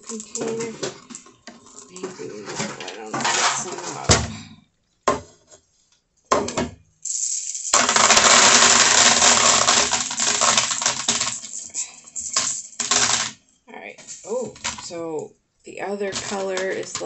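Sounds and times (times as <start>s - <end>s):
glass beads clattering in container: 7.0s - 13.3s.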